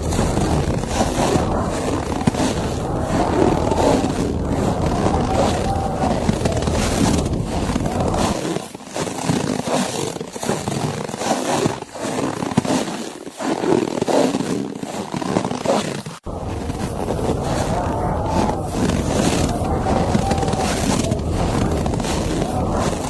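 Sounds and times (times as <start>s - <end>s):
low rumble: 0.0s - 8.4s, 16.3s - 23.0s
rushing wind: 0.0s - 8.4s, 16.3s - 23.0s.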